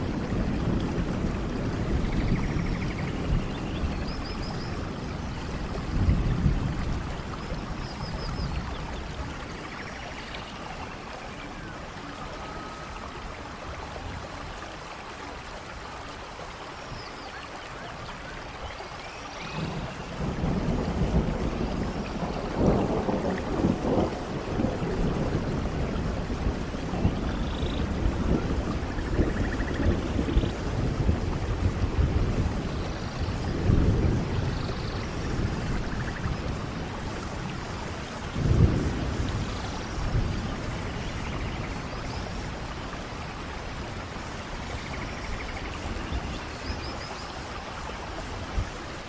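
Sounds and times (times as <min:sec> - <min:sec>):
rolling thunder: 0:00.0 - 0:09.8, 0:19.4 - 0:46.6
rain falling: 0:00.0 - 0:49.0.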